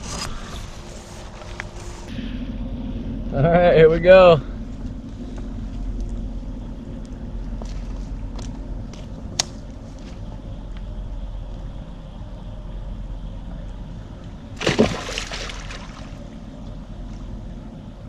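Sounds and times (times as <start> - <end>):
steady low rumble: 0.0 - 18.0
fish splashing into water: 14.6 - 16.2.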